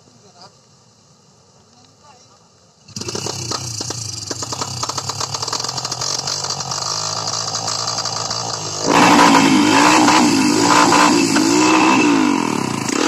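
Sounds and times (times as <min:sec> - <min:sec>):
small engine rattling: 0:02.9 - 0:13.0.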